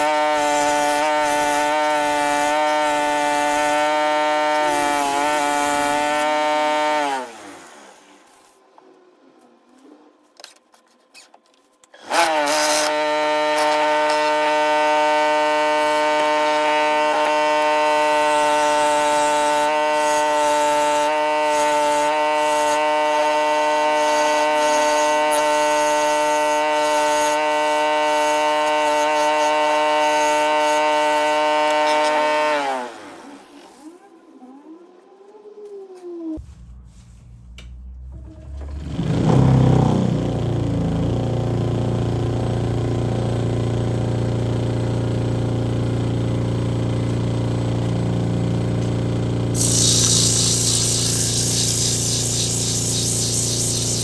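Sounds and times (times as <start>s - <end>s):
power tool motor whine: 0.0s - 8.5s, 12.0s - 35.8s, 48.8s - 54.0s.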